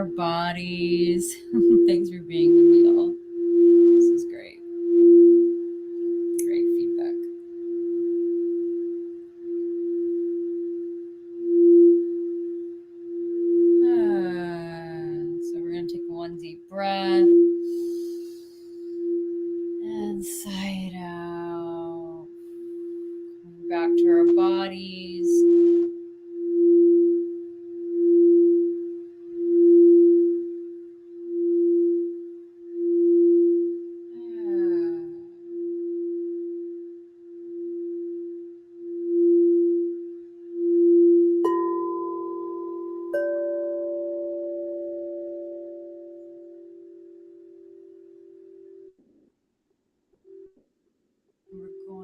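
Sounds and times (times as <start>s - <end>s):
singing bowl tone: 0.0s - 48.9s.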